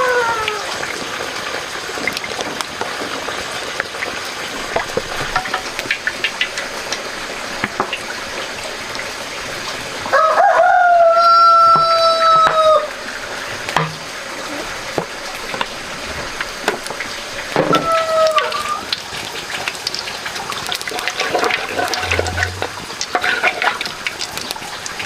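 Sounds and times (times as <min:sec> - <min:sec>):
rooster crowing: 0:10.1 - 0:13.0.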